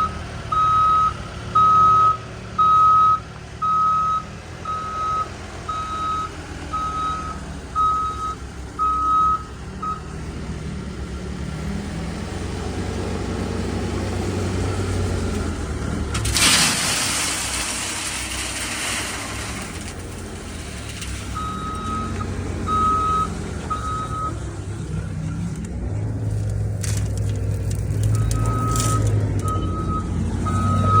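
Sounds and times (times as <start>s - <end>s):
heavy engine humming: 0.0s - 31.0s
reversing alarm beeps: 0.5s - 10.1s, 21.4s - 24.4s, 28.2s - 31.0s
gravel pouring into truck bed: 16.1s - 22.2s, 26.3s - 29.5s.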